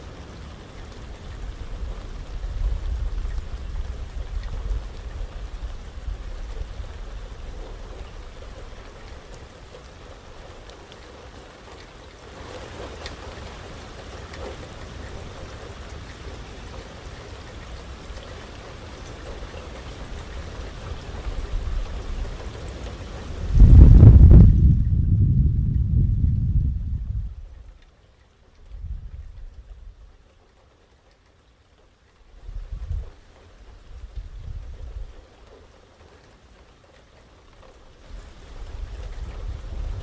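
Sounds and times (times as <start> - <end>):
steady rain: 0.0 - 40.0
low wind rumble: 0.4 - 10.7, 18.8 - 27.8, 28.5 - 30.2, 32.3 - 35.3, 38.0 - 40.0
wind gust on microphone: 23.3 - 27.6, 28.7 - 30.0, 32.4 - 33.1, 38.1 - 40.0.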